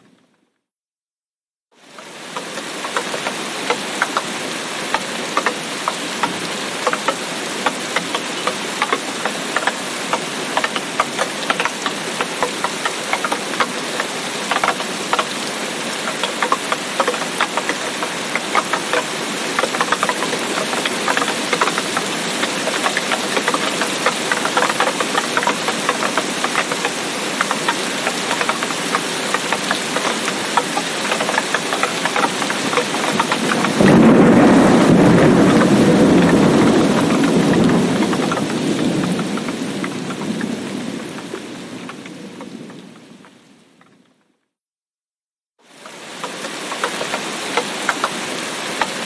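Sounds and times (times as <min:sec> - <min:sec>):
heavy rain falling: 0:01.8 - 0:43.8, 0:45.6 - 0:49.0
thunder rumbling: 0:32.0 - 0:43.5.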